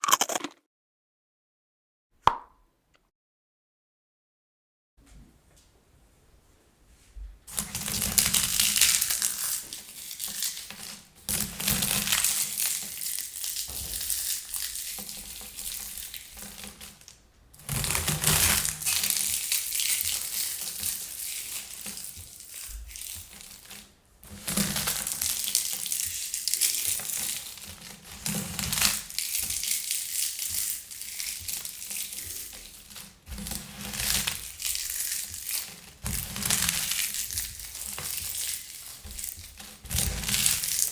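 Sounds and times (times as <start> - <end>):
popcorn crushed by hand: 0.0 - 0.6, 7.5 - 40.9.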